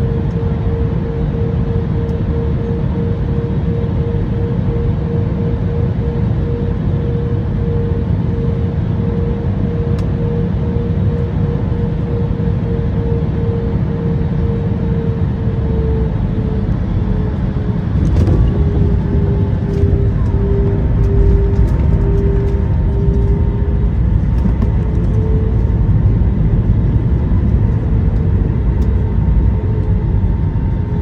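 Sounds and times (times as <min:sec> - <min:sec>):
pulsing hum: 0:00.0 - 0:31.0
vehicle interior rumble: 0:15.5 - 0:31.0.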